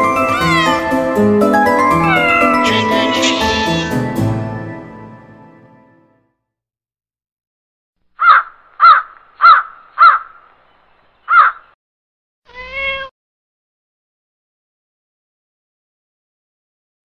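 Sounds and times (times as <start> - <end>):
high-pitched bird call: 0.1 - 0.9, 2.0 - 4.0, 11.2 - 11.8
crow cawing: 2.1 - 3.9, 8.2 - 10.4, 11.2 - 11.8.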